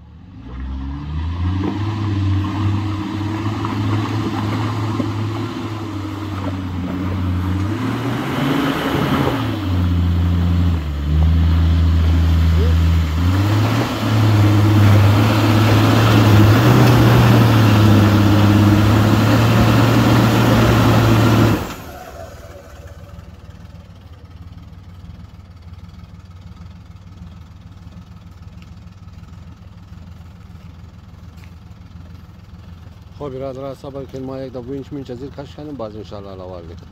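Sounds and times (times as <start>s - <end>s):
low engine rumble: 0.0s - 36.9s
engine revving hard: 0.4s - 22.6s.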